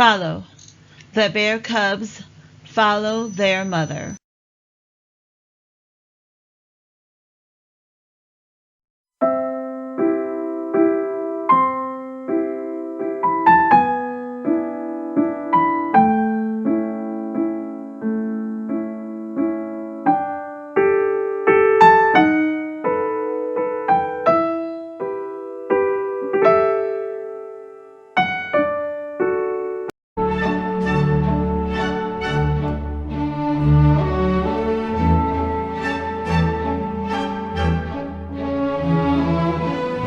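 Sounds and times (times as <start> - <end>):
slow solo piano: 9.2 - 29.9.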